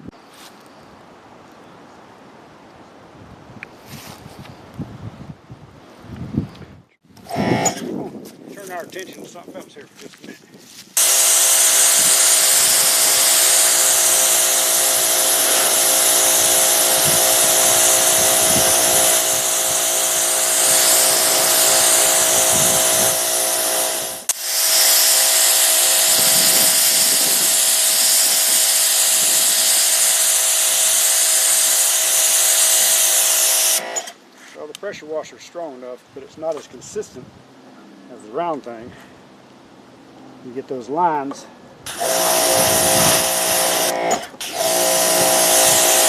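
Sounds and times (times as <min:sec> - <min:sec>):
pressure washer pump whine: 0:07.2 - 0:07.9, 0:11.0 - 0:34.2, 0:41.9 - 0:46.0
water jet hiss: 0:11.0 - 0:34.2.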